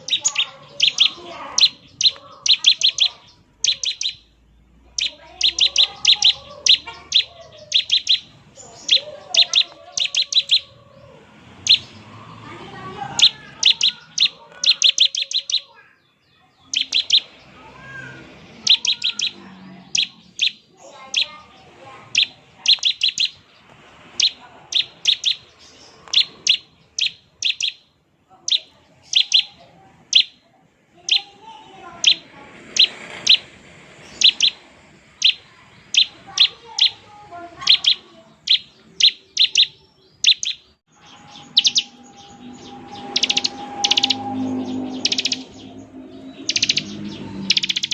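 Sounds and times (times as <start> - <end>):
bird rattling call: 0.0 - 4.3, 5.0 - 10.7, 13.1 - 15.7, 16.7 - 18.0, 18.6 - 21.5, 22.1 - 23.5, 24.1 - 27.8, 31.9 - 37.0, 37.6 - 47.9
faint bird twittering: 0.0 - 30.4, 31.0 - 47.9.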